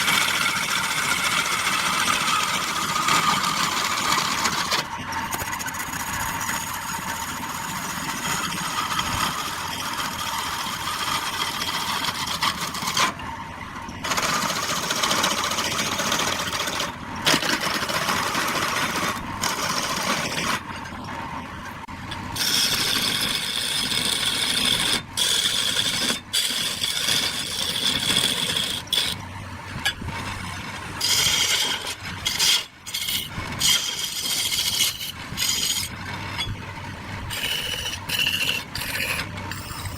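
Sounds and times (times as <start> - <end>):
lathe tool scraping spinning wood: 0.0 - 13.2, 14.0 - 21.1, 22.1 - 29.3, 30.1 - 39.9.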